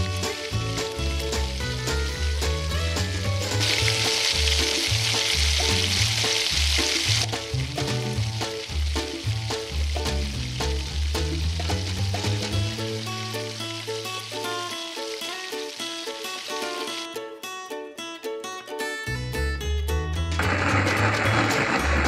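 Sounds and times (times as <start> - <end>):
backing track with bass line: 0.0 - 14.1, 19.1 - 22.0
onions sizzling in a frying pan: 0.0 - 17.1, 20.4 - 22.0.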